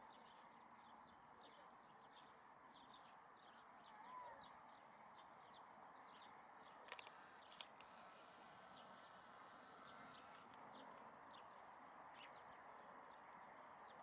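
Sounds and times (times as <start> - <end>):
faint steady hiss: 6.9 - 14.0.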